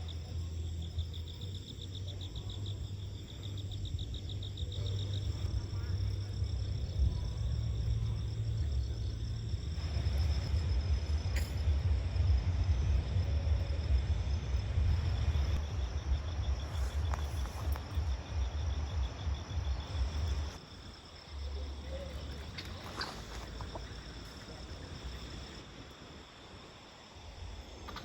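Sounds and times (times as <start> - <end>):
insects chirring: 0.0 - 28.0
loud low rumble: 2.1 - 20.6.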